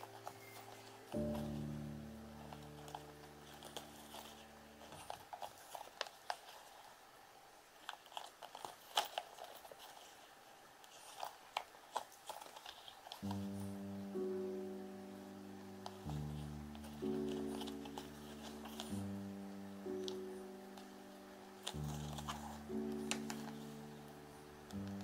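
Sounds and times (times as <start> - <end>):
guitar music: 0.0 - 4.9, 13.2 - 25.0
crisp clicks and crunches: 0.0 - 7.0, 7.8 - 13.7, 15.8 - 19.2, 21.5 - 25.0.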